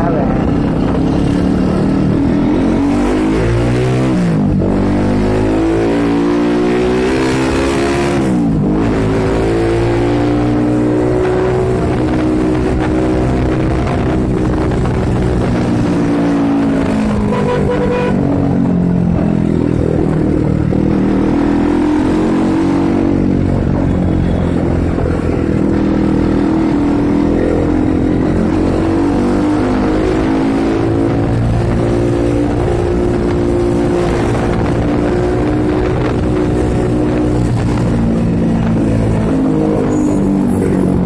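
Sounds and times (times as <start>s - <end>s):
motorcycle engine running: 13.5s - 29.3s.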